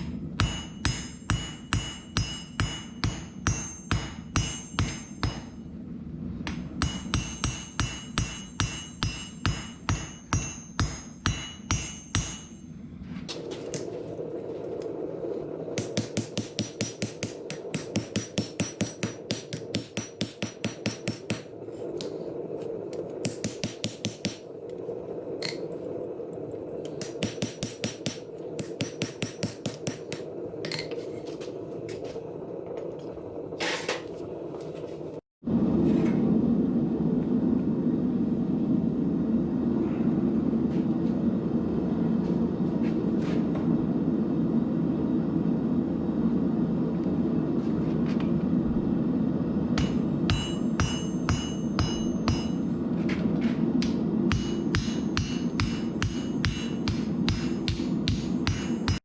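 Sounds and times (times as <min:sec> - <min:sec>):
hammer striking steel on anvil: 0:00.0 - 0:05.7, 0:06.4 - 0:13.9, 0:15.8 - 0:22.2, 0:23.2 - 0:24.6, 0:27.0 - 0:31.0, 0:49.8 - 0:52.8, 0:53.8 - 0:59.0
steady rushing noise: 0:13.2 - 0:35.8.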